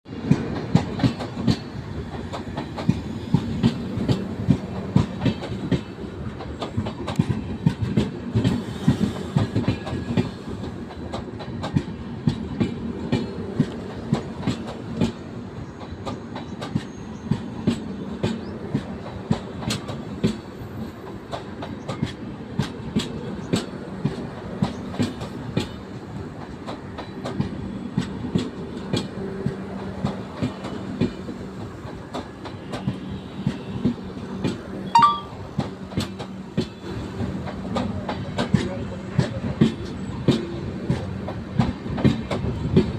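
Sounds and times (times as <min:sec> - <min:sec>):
train rumble: 0:00.1 - 0:42.9
train wheels clickety-clack: 0:00.1 - 0:42.9.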